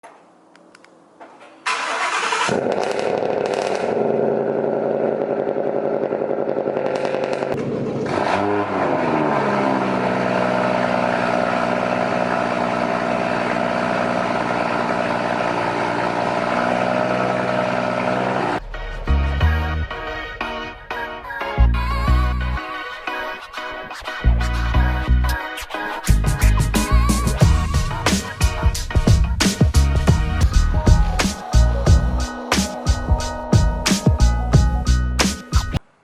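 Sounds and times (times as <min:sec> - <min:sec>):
car engine starting and idling: 0:01.6 - 0:22.6.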